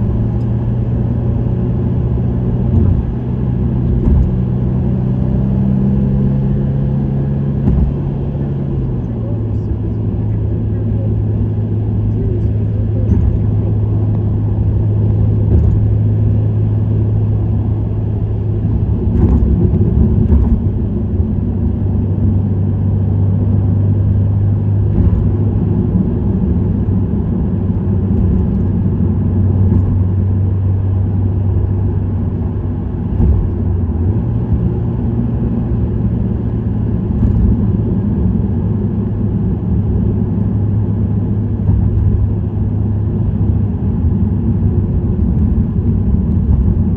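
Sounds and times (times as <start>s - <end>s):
car exhaust drone: 0.0s - 46.9s
road noise: 0.0s - 46.9s.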